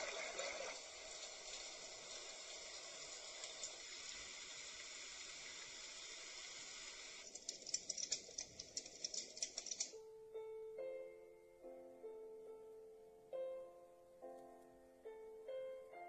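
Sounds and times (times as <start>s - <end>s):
steady white noise hiss: 0.0s - 16.0s
crackling with sharp clicks: 7.2s - 10.0s.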